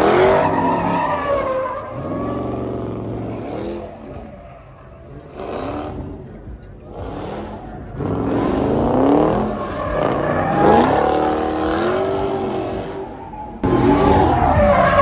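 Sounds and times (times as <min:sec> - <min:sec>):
car engine revving hard: 0:05.2 - 0:06.2, 0:06.9 - 0:14.8.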